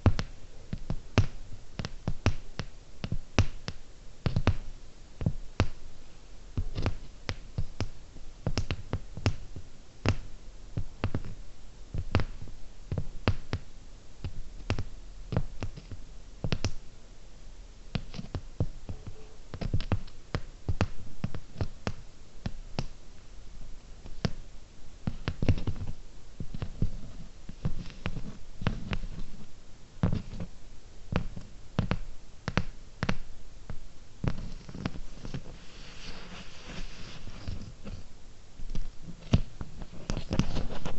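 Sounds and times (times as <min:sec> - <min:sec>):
fingernail tapping on gems: 0:00.0 - 0:05.8, 0:06.6 - 0:11.4, 0:12.0 - 0:16.8, 0:31.1 - 0:35.4.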